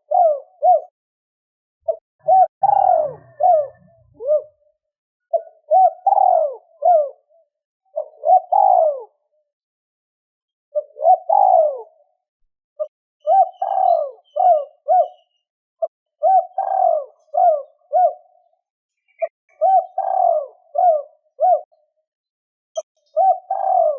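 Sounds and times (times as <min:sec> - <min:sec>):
dove cooing: 0:00.0 - 0:00.9, 0:01.9 - 0:09.2, 0:10.7 - 0:12.2, 0:12.8 - 0:18.5, 0:19.1 - 0:21.9, 0:22.8 - 0:23.9.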